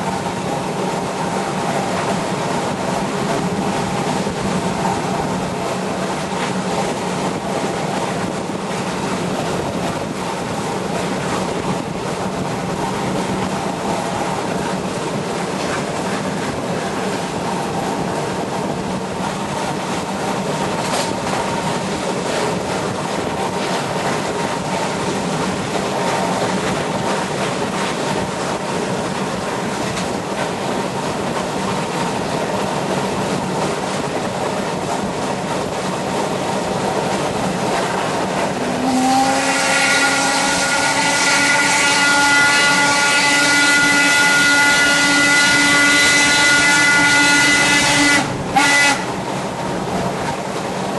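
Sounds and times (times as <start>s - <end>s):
steam train rushing: 0.0s - 50.9s
steam whistle blast: 38.8s - 49.1s.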